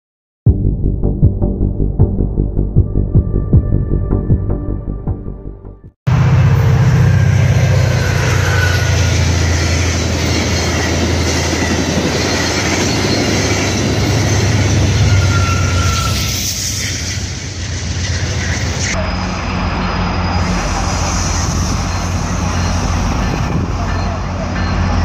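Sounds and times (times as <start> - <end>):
train wheels rumbling on track: 6.1 - 25.0
faint wheel squeal: 7.0 - 13.6, 14.2 - 17.3.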